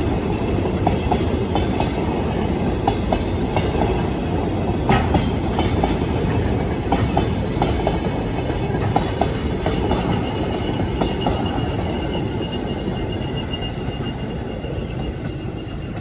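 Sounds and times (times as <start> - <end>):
train wheels rumbling on rail: 0.0 - 16.0
high wheel squeal: 9.6 - 16.0.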